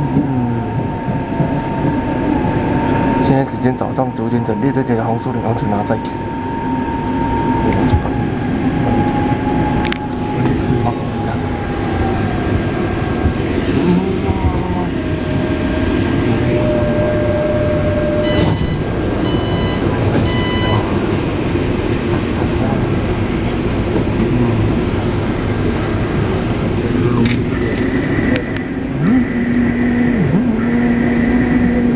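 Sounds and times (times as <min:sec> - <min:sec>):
train traction motors whining: 0:00.0 - 0:31.9
wheels rumbling on rail: 0:00.0 - 0:31.9
short high electronic beeps: 0:18.2 - 0:20.9.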